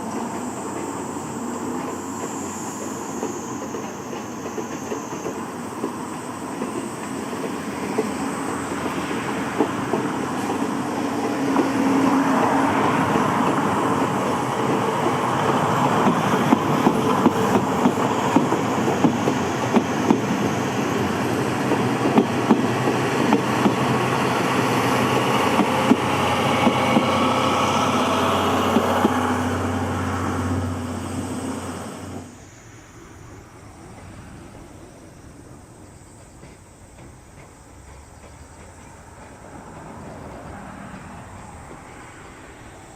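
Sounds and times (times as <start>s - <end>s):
train wheels clacking over rails: 0.0s - 32.3s, 35.4s - 42.9s.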